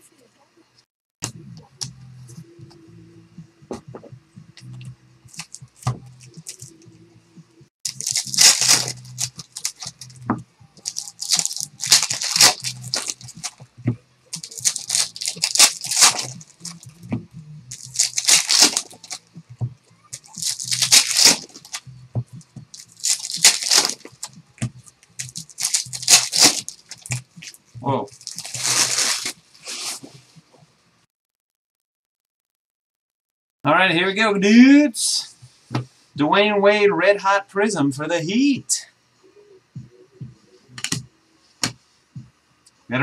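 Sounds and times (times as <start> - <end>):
steady low hum: 1.2 - 31.0
foil wrappers tearing and crinkling: 7.9 - 10.1, 10.8 - 13.6, 14.3 - 16.9, 17.7 - 19.2, 20.1 - 21.8, 22.7 - 24.4, 25.1 - 30.0.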